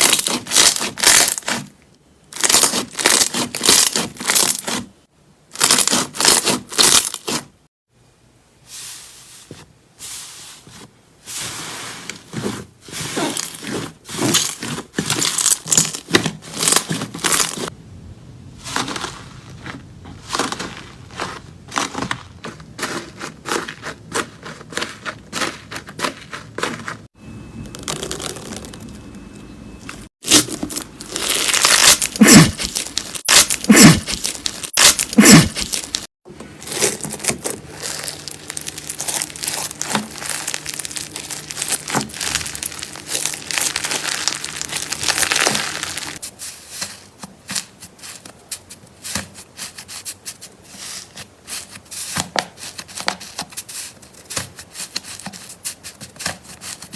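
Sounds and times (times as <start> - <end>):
slime squeezed by hand crackling: 30.2 - 36.0, 36.7 - 46.2.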